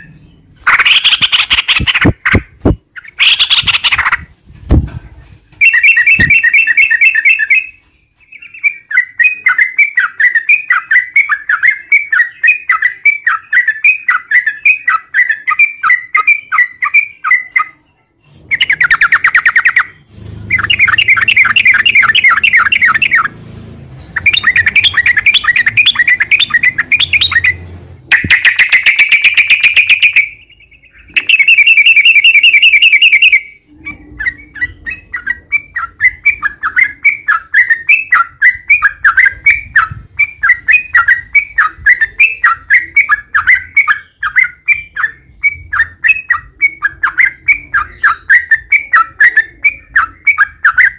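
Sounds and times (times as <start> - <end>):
bird chattering song: 0.0 - 4.3, 5.6 - 23.4, 24.0 - 50.9
bird quickly repeated notes: 0.6 - 4.3, 5.6 - 7.8, 18.5 - 23.6, 24.2 - 33.5.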